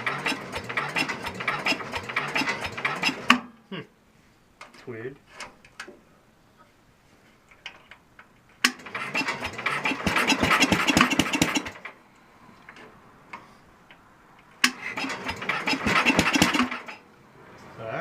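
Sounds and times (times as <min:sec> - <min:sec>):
electric starter cranking engine: 0:00.0 - 0:03.4, 0:08.6 - 0:12.0, 0:14.6 - 0:17.0
starter click: 0:08.6 - 0:08.8.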